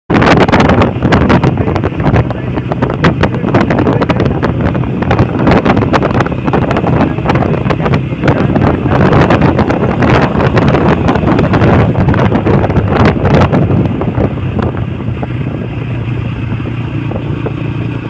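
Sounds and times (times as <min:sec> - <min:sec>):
wind buffeting microphone: 0:00.1 - 0:18.0
motorcycle engine running: 0:00.2 - 0:18.0.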